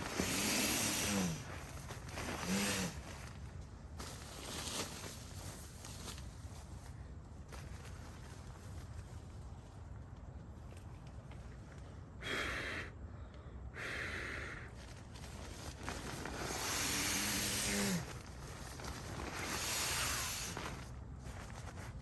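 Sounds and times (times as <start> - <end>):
person breathing heavily: 0.0 - 3.1, 12.2 - 20.9.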